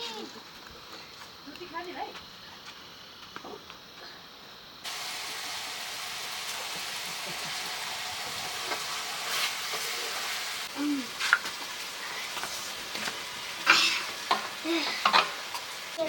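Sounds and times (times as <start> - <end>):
food sizzling in a pan: 4.7 - 16.0
stirring knocks: 6.3 - 9.0.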